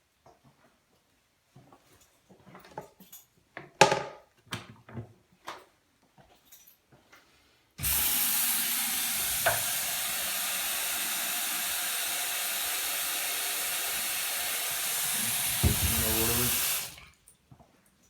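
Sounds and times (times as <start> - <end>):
water tap running: 7.8 - 17.1
knocks: 15.2 - 16.7.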